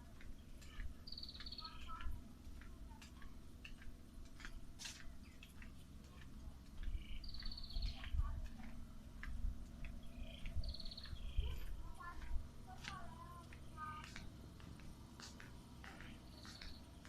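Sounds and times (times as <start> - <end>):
small animal chirping trill: 10.1 - 11.6.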